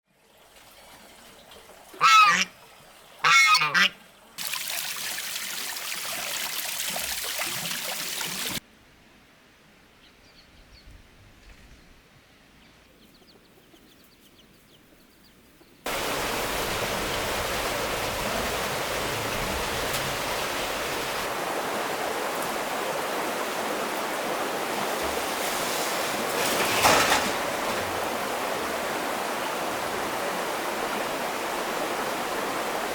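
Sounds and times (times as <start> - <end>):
rushing water: 0.1 - 8.6, 15.9 - 32.9
loud animal calls: 2.0 - 2.5, 3.2 - 3.9.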